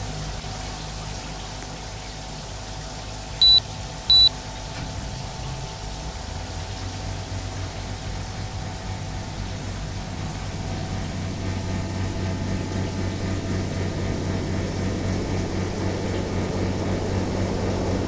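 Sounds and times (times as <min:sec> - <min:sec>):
short electronic beeps: 0:03.4 - 0:04.3
air conditioner humming: 0:03.4 - 0:04.8.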